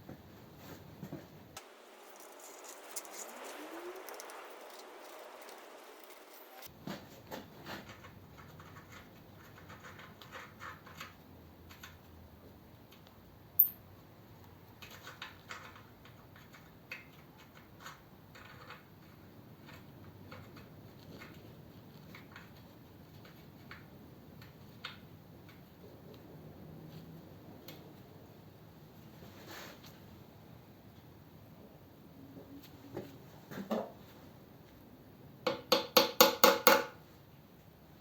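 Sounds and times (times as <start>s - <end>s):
hand tools clicking and scraping: 1.6s - 6.7s.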